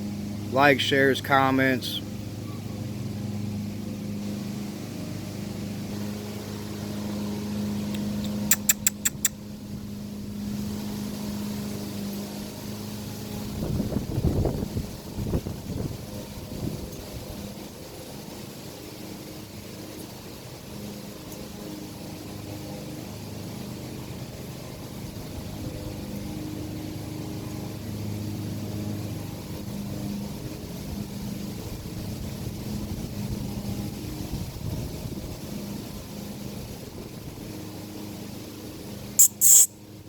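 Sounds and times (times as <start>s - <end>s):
engine humming: 0.0s - 34.1s
sharp loud clicks: 8.0s - 9.4s.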